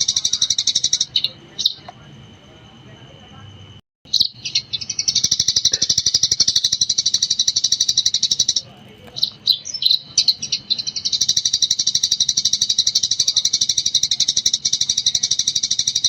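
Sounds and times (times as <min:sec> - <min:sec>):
sparrow chirping rapidly: 0:00.0 - 0:01.9, 0:04.1 - 0:16.0.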